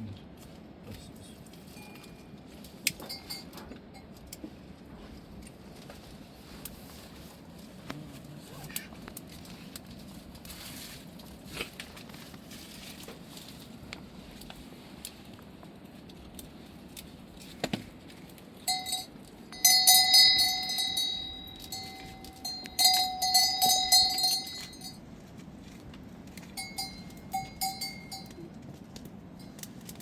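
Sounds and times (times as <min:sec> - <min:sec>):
metal bell clanking and ringing: 0:03.0 - 0:04.1, 0:18.7 - 0:25.0, 0:26.6 - 0:28.5.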